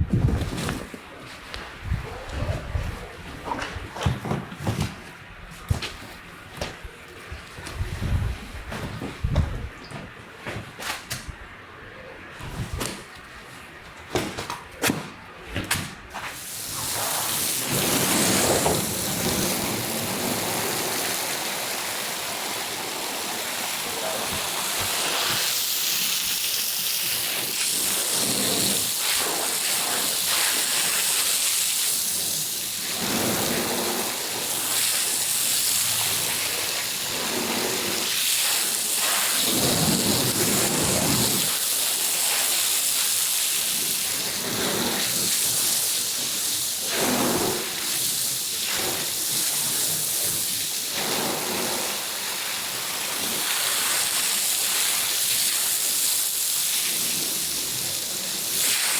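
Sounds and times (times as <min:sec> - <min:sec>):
water spraying onto carpet: 0:16.1 - 0:58.9.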